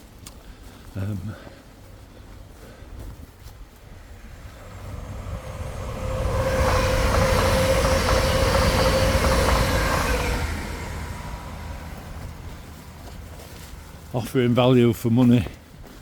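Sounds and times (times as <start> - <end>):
train passing: 3.8 - 15.1.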